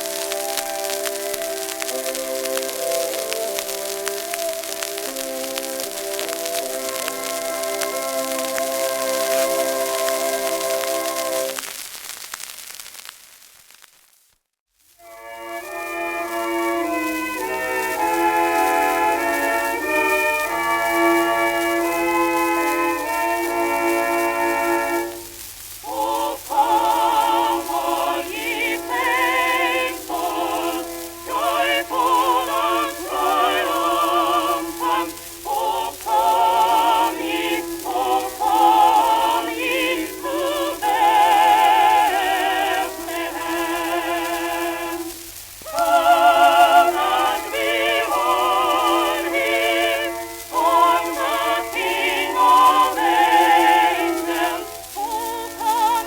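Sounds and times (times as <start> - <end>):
musical accompaniment: 0.0 - 11.7, 15.0 - 56.0
person singing with vibrato: 15.2 - 56.0.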